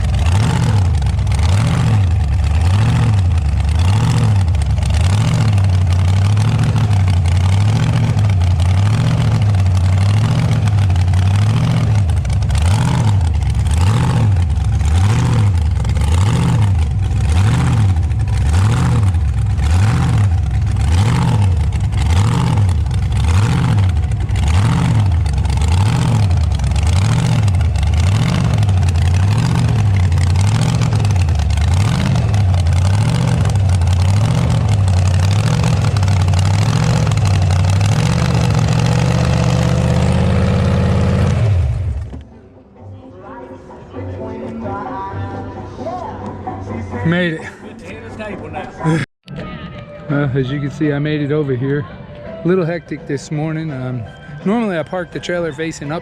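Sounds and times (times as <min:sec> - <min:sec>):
car engine while driving: 0:00.0 - 0:42.3.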